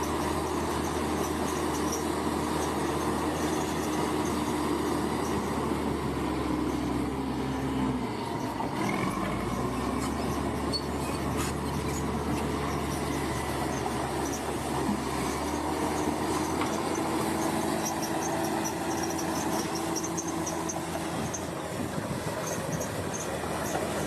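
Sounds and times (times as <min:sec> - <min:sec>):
steel tracks squealing and clanking: 0:00.0 - 0:06.9, 0:07.5 - 0:24.0
diesel engine running: 0:00.0 - 0:24.0.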